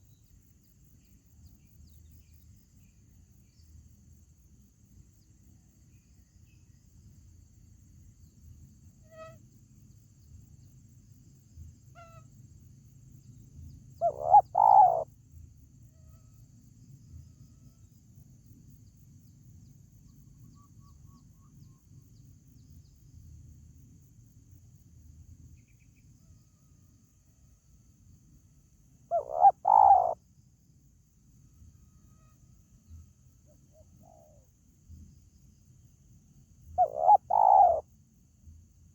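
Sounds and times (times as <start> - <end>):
dove cooing: 14.0 - 15.0, 29.1 - 30.2, 36.8 - 37.8.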